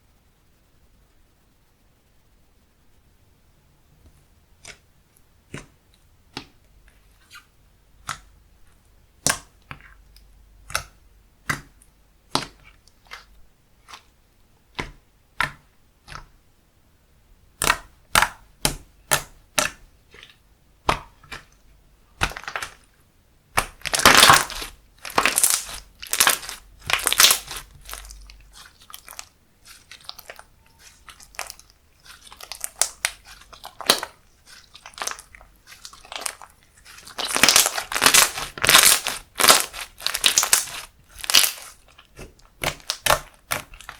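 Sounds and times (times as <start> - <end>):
slime clicking and crackling: 9.2 - 14.1, 17.6 - 22.9, 23.5 - 43.9.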